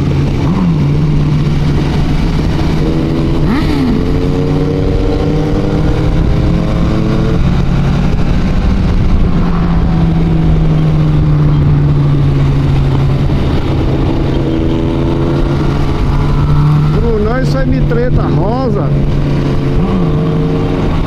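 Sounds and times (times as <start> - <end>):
motorcycle engine running: 0.0 - 21.0
wind noise: 0.0 - 21.0.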